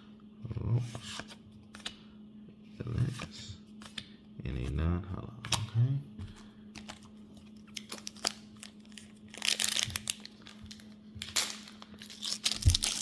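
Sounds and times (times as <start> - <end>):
faint steady hum: 0.0 - 13.0
foil wrapper crinkling: 6.8 - 13.0.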